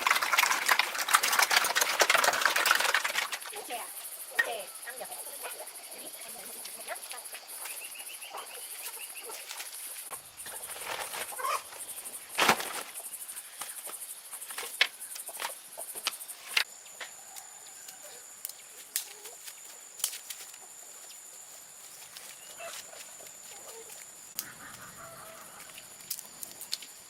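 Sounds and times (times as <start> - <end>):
chickens clucking: 0.0 - 11.9, 14.5 - 16.6.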